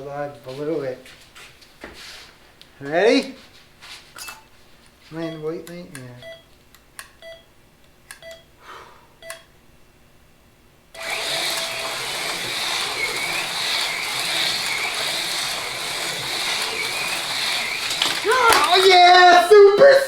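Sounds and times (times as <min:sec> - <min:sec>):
race timer countdown beeps: 0:05.2 - 0:05.4, 0:06.2 - 0:06.5, 0:07.2 - 0:07.5, 0:08.2 - 0:08.5, 0:09.2 - 0:09.5
long start tone: 0:11.0 - 0:19.0
slot cars whirring: 0:11.0 - 0:19.6.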